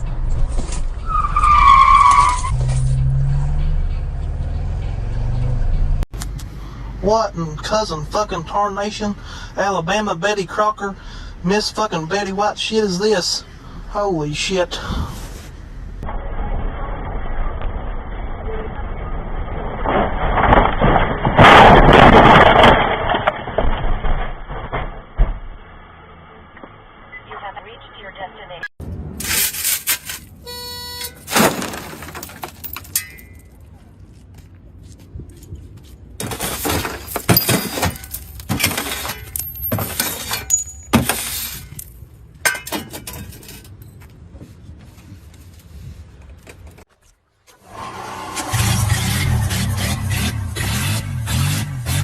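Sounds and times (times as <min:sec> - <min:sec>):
crunching and scraping: 0:19.7 - 0:25.6, 0:29.0 - 0:47.6
car crash crunching metal: 0:19.7 - 0:26.0, 0:31.1 - 0:33.4, 0:36.2 - 0:41.8
glass shattering: 0:31.1 - 0:33.5, 0:36.2 - 0:43.0.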